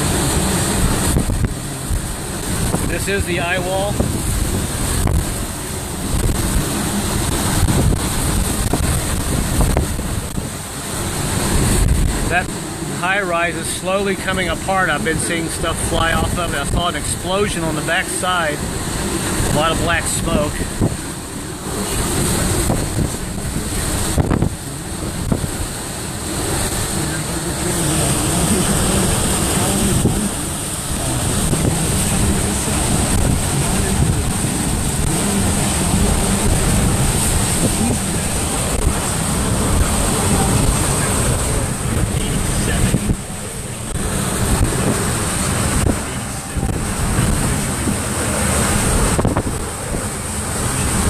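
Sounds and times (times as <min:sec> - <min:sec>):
hurricane wind gusting: 0:00.0 - 0:51.0
wind buffeting microphone: 0:00.0 - 0:51.0.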